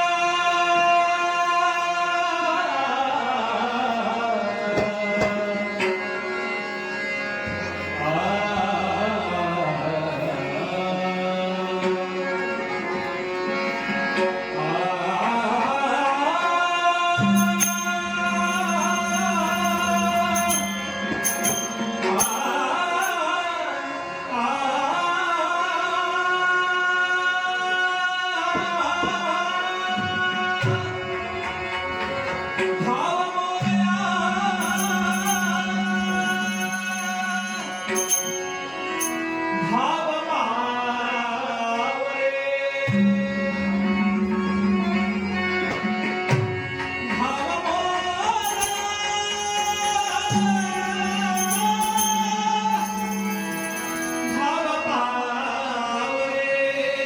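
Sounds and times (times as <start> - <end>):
man singing a devotional hymn: 0.0 - 5.8, 8.0 - 12.5, 14.6 - 20.4, 22.1 - 30.9, 32.8 - 37.8, 39.7 - 43.1, 47.2 - 53.5, 54.3 - 57.0.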